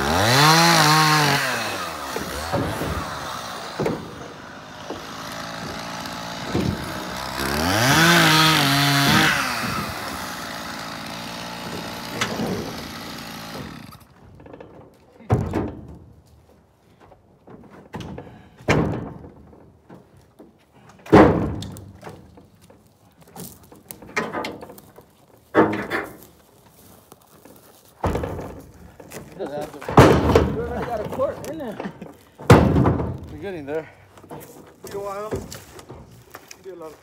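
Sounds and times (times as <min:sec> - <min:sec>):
chainsaw idling and revving: 0:00.0 - 0:14.1
sharp wooden knocks: 0:00.1 - 0:16.2, 0:17.4 - 0:20.1, 0:21.0 - 0:22.6, 0:23.4 - 0:26.2, 0:28.0 - 0:33.5.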